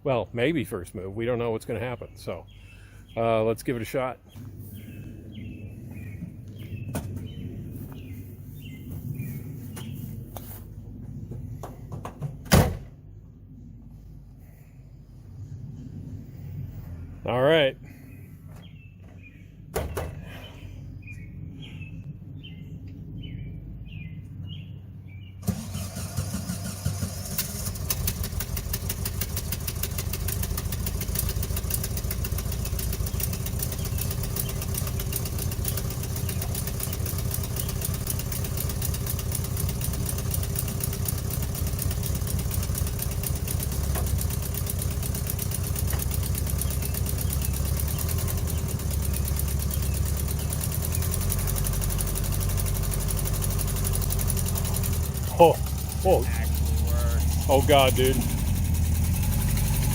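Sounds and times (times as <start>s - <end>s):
engine running: 0.2s - 59.9s
engine cranking on starter: 25.4s - 59.9s.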